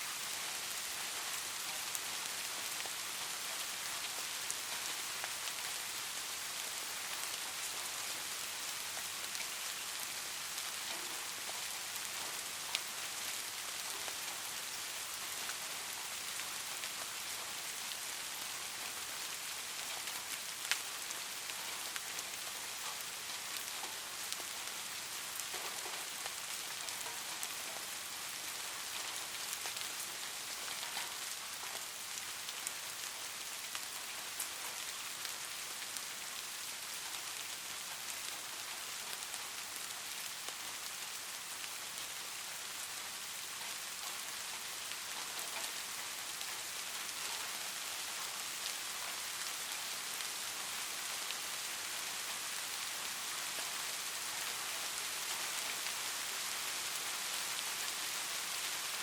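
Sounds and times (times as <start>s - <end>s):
light rain falling: 0.0s - 59.0s
raindrops ticking: 8.9s - 17.8s, 19.7s - 51.4s.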